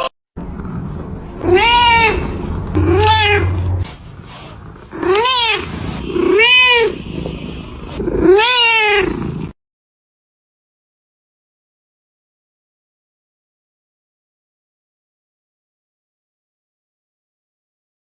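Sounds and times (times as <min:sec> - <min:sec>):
cat meowing: 0:01.4 - 0:07.3, 0:07.9 - 0:09.5.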